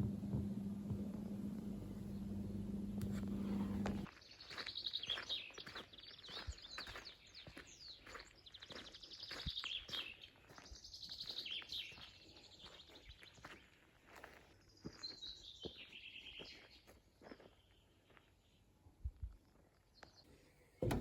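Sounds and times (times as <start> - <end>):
faint songbirds trilling: 1.9 - 18.7.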